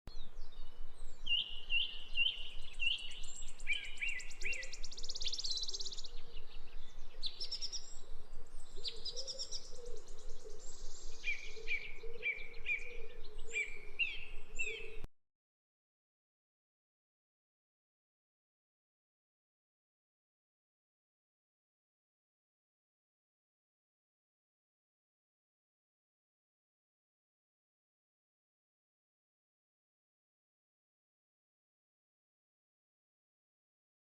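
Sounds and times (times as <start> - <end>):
sparrows chirping: 0.1 - 15.1.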